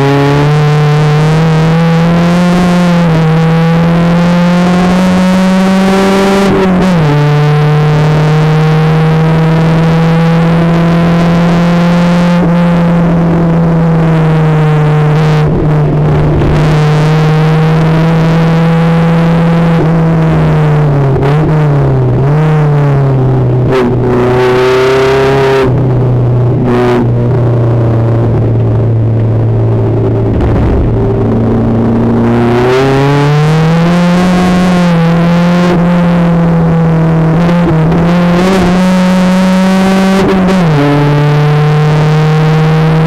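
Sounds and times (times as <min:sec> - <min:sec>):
race car engine under load: 0:00.0 - 0:43.0.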